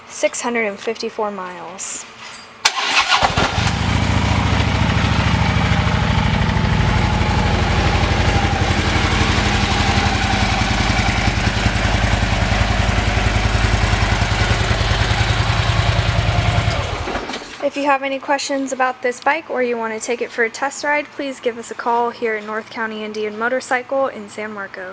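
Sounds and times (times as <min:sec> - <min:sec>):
motorcycle idling: 0:02.7 - 0:17.6.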